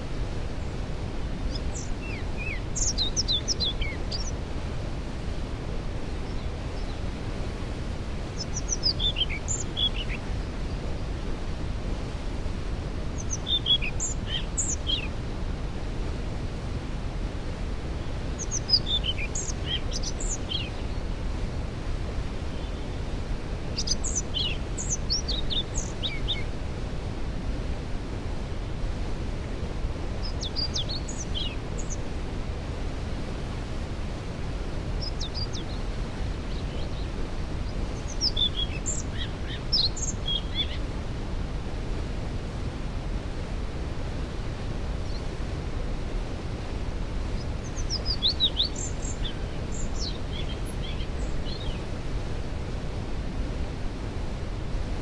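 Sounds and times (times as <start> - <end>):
songbird singing: 0.3 - 5.3, 6.0 - 11.3, 12.9 - 16.2, 17.4 - 21.2, 22.4 - 26.6, 30.1 - 32.3, 34.6 - 41.0, 45.0 - 45.6, 47.2 - 52.5.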